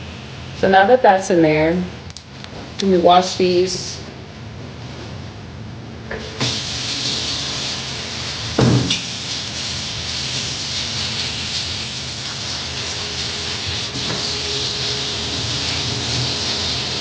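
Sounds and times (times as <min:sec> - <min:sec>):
tap water running into sink: 0:06.2 - 0:17.0
loud knock: 0:08.6 - 0:09.0.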